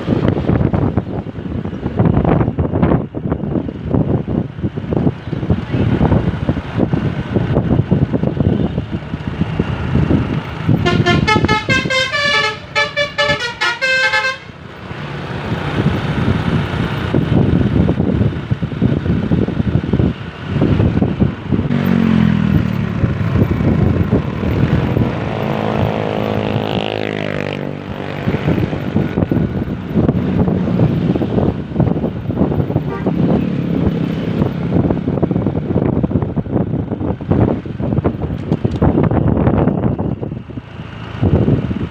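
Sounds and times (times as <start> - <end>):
engine rumble: 0.0 - 41.9
wind noise on microphone: 0.0 - 41.9
bus multi-tone air horn tune: 10.8 - 14.6, 32.9 - 33.1.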